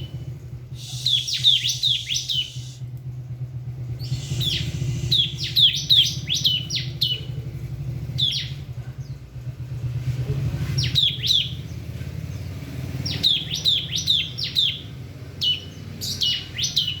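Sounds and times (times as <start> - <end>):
steady low hum: 0.0 - 9.8
bird singing short falling notes: 0.8 - 2.9, 4.0 - 7.1.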